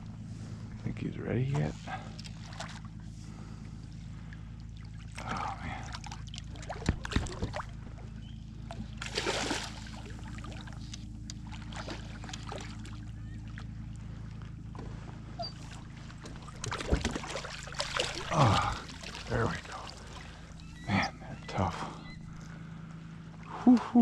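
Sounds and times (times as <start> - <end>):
boat motor humming: 0.0 - 24.0
splashy rush of water: 9.0 - 9.9.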